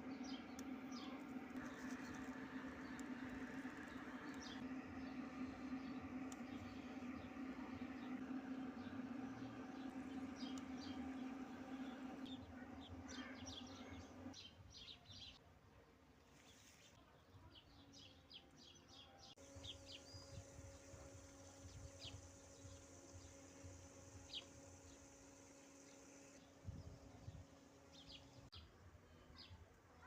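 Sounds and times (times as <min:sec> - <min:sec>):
low hum: 0:00.0 - 0:14.4
small birds chirping: 0:00.0 - 0:15.4.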